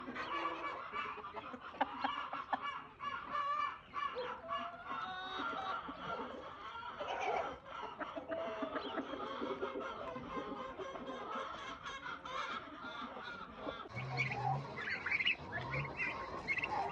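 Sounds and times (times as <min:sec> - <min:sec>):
chickens clucking: 0:00.0 - 0:16.9.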